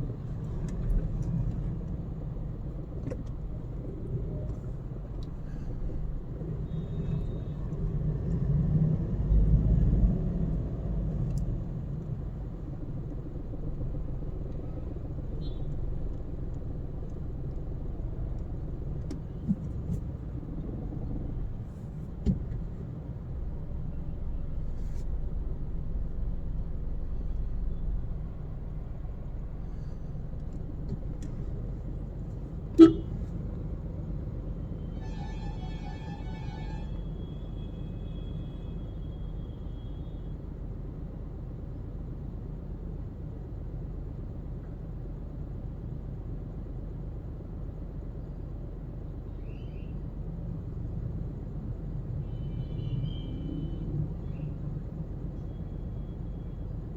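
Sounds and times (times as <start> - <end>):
car road and engine rumble: 0.0 - 56.9
short car horn toot: 32.8 - 33.2, 35.0 - 38.3.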